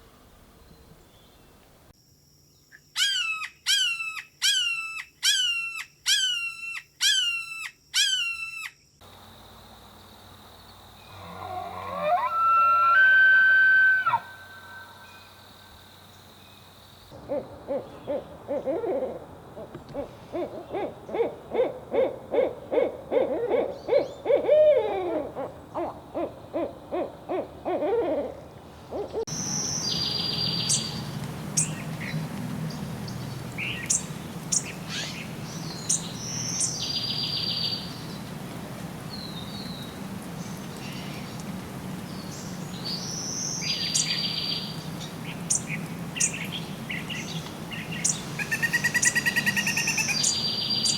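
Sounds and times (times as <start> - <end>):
owl hooting: 17.2 - 29.3
small birds chirping: 29.3 - 38.3, 42.1 - 50.9.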